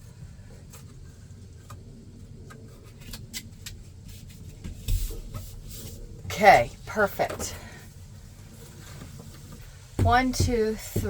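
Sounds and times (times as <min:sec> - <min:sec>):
light taps and rustles: 0:04.2 - 0:06.0
bump against van ceiling: 0:08.9 - 0:11.0.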